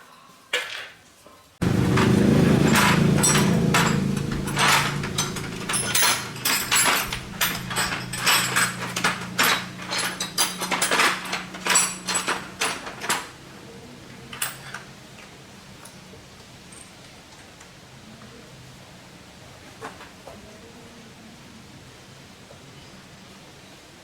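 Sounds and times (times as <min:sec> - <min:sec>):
low steady hum: 0:01.6 - 0:12.9
metallic clinks of hand tools: 0:01.6 - 0:13.2.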